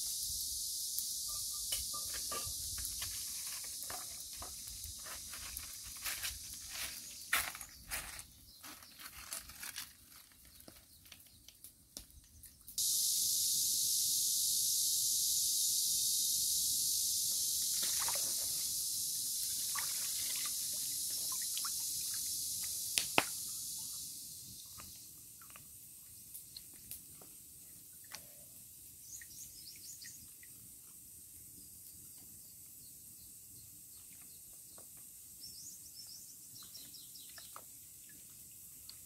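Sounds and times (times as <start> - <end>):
food sizzling in a pan: 0.0 - 7.3, 12.8 - 24.6.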